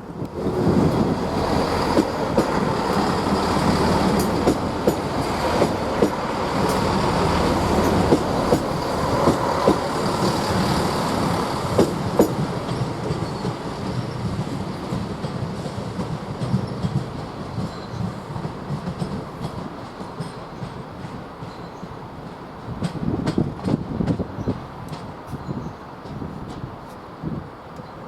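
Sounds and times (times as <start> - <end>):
train rumble: 0.0 - 28.0
train wheels clicking over rail joints: 0.2 - 27.0.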